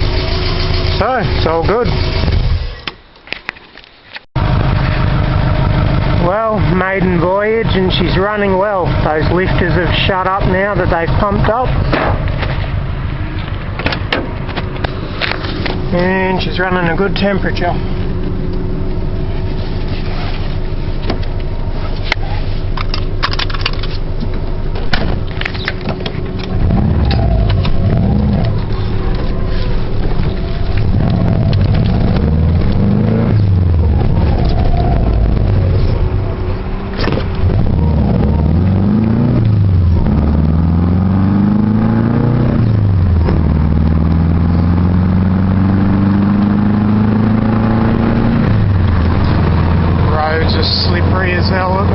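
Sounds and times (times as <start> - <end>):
car engine accelerating through gears: 26.0 - 51.9.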